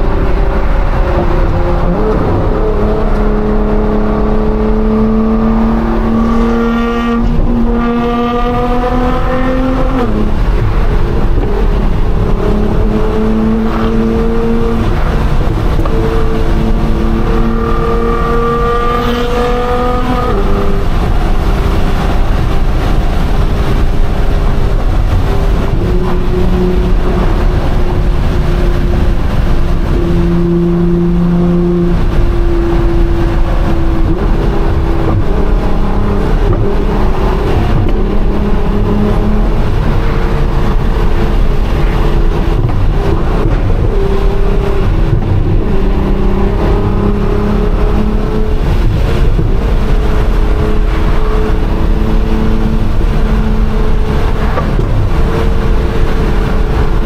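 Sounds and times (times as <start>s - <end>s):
car engine droning at cruise: 0.0s - 57.0s
tyre and road noise: 0.0s - 57.0s.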